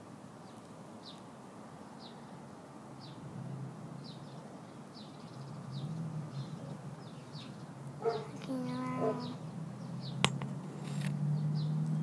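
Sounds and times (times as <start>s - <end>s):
small bird chirping: 4.0s - 10.2s.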